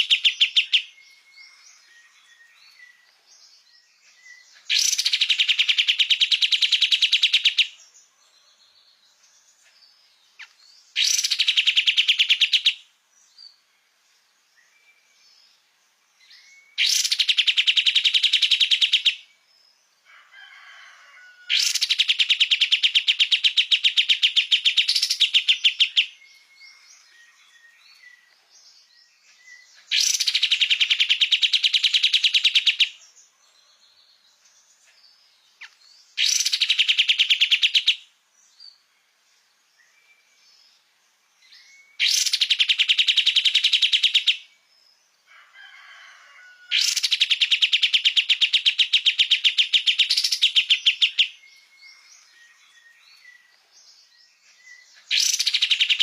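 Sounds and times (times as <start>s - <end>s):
songbird singing rapid high notes: 0.0s - 1.3s, 4.3s - 7.8s, 10.4s - 12.8s, 16.7s - 19.2s, 21.6s - 26.9s, 29.8s - 33.0s, 35.6s - 38.0s, 41.9s - 44.5s, 46.8s - 52.3s, 55.0s - 56.0s.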